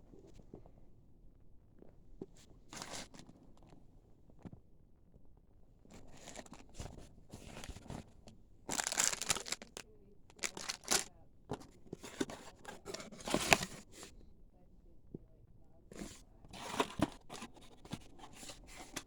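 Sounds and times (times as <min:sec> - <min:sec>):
packaging tearing and crinkling: 0:08.7 - 0:11.1.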